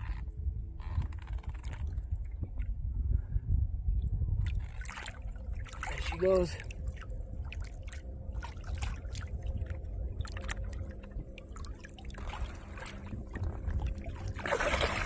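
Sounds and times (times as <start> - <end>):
low hum: 0.0 - 15.0
water lapping against boat: 4.4 - 15.0
loud water splashes: 14.3 - 15.0.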